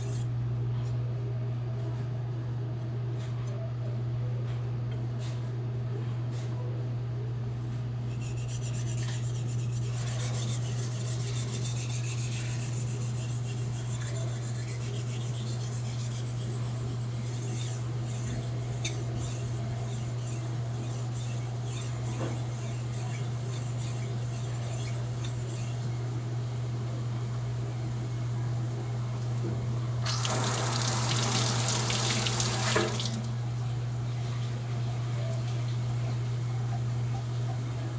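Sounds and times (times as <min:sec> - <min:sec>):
steady low hum: 0:00.0 - 0:37.9
knife scraping on whetstone: 0:08.1 - 0:25.9.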